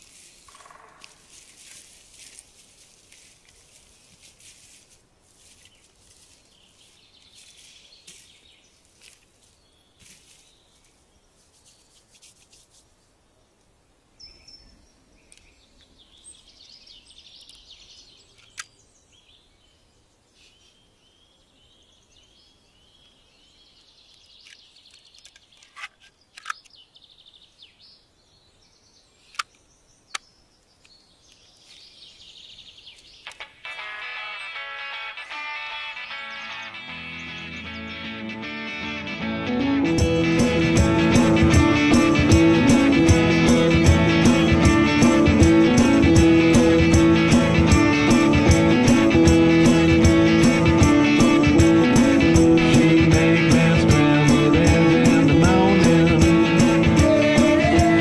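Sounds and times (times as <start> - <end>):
faint bird chirping: 5.4 - 12.2, 12.9 - 33.6, 35.9 - 38.1
sharp clicks: 24.4 - 26.8, 29.3 - 31.0.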